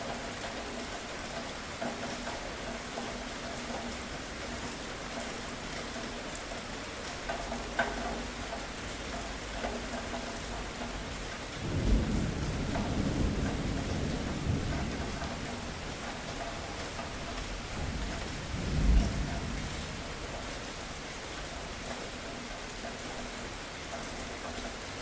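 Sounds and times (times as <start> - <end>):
steady rain falling: 0.0 - 25.0
low roll of thunder: 11.6 - 20.3.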